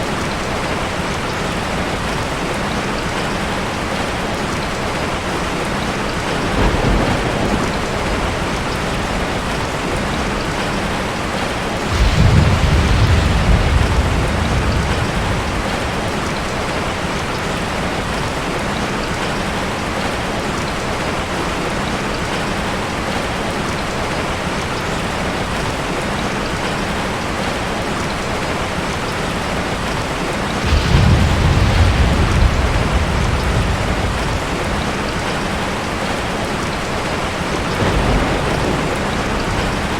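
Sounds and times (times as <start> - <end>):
steady rain: 0.0 - 39.9
low thunder rumbles: 5.0 - 18.8, 29.8 - 39.9.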